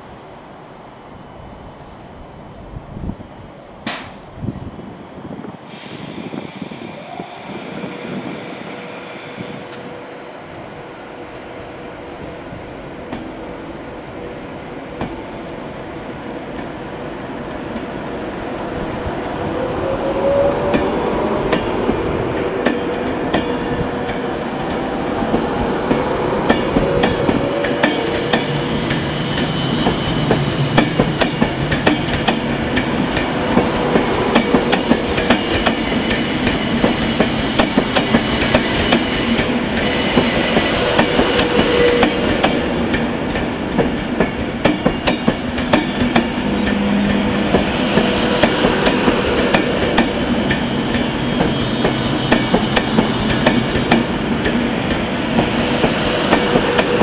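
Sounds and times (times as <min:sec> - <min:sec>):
electric train whining: 0:05.5 - 0:57.0.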